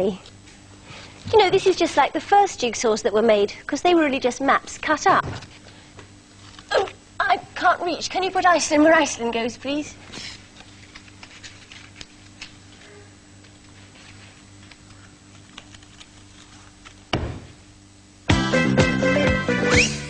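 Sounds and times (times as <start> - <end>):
low steady hum: 0.0 - 18.4
loud knock: 17.1 - 17.6
music: 18.3 - 20.0.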